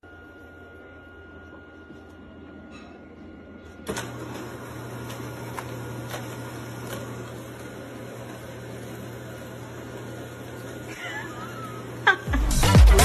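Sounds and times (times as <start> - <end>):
low electrical hum: 0.0 - 12.3.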